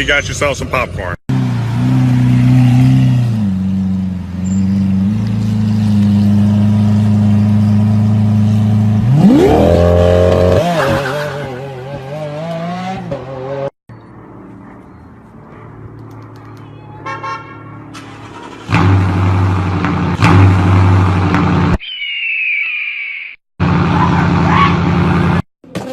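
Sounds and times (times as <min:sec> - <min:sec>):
car engine revving: 0:01.3 - 0:13.7.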